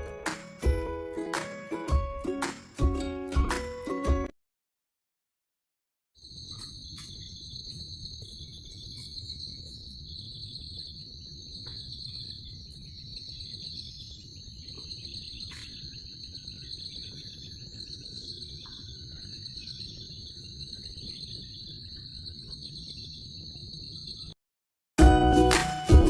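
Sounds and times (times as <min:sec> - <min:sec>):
insects chirring: 0:06.2 - 0:24.4.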